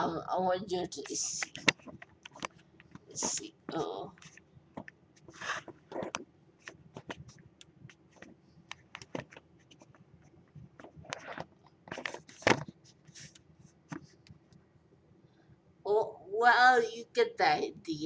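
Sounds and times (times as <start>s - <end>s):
phone handling clicks and scrapes: 1.1s - 14.4s.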